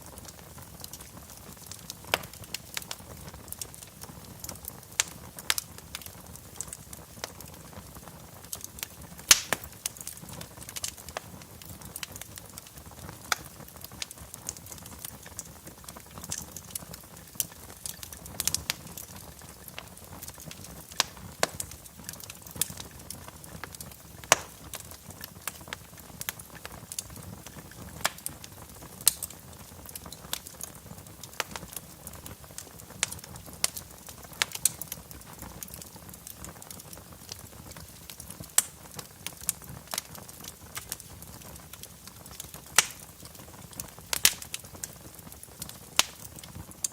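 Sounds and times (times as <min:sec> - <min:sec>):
fire crackling and popping: 0:00.0 - 0:46.9
low fire rumble: 0:00.0 - 0:46.9.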